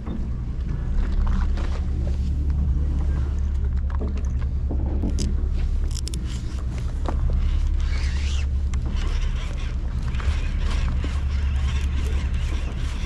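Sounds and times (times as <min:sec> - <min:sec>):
boat engine humming: 0:00.0 - 0:13.0
clicks and scrapes: 0:05.0 - 0:13.0.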